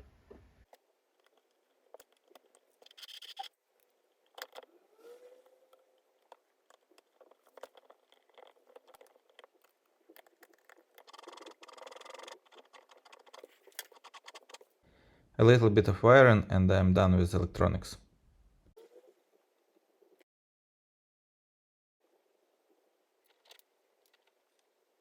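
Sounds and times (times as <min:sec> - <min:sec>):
small parts scraping and clicking: 0:00.6 - 0:14.8, 0:23.2 - 0:24.7.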